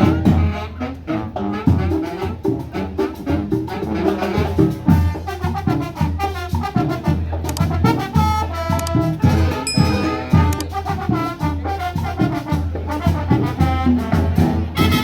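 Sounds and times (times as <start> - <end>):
marching band brass tune: 0.0 - 15.0
bass drum beat: 4.4 - 15.0.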